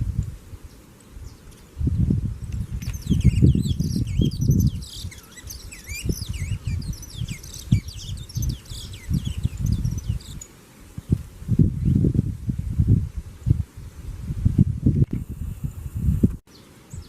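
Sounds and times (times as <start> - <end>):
small songbirds chirping: 0.2 - 12.8, 16.5 - 17.0.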